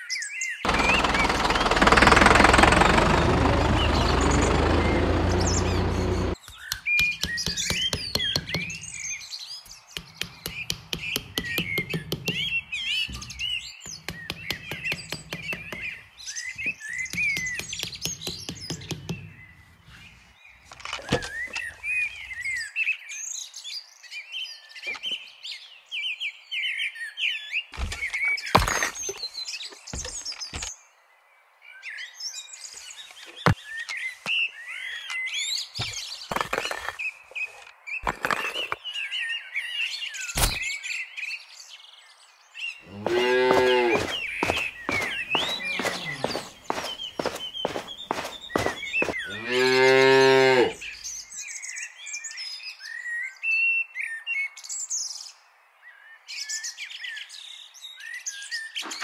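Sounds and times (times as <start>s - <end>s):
small birds chirping: 0.0s - 31.1s, 31.7s - 59.0s
rapid scraping rattle: 0.7s - 6.4s
sharp knocks of wood in sand: 9.9s - 12.6s, 43.0s - 49.3s.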